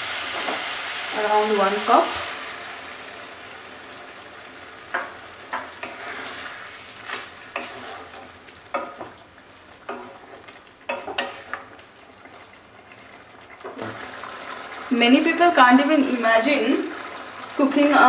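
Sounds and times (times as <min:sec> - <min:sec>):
food sizzling in a pan: 0:00.0 - 0:18.0
spatula knocking and scraping pan: 0:04.9 - 0:09.2, 0:09.8 - 0:11.7.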